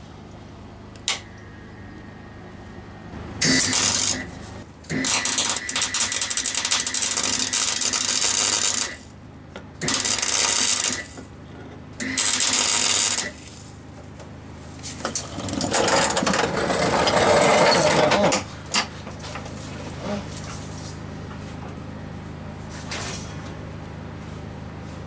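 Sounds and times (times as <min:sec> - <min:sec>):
generator running: 0:00.0 - 0:25.0
welder arc crackling: 0:03.4 - 0:09.0, 0:09.8 - 0:11.2, 0:12.1 - 0:13.4.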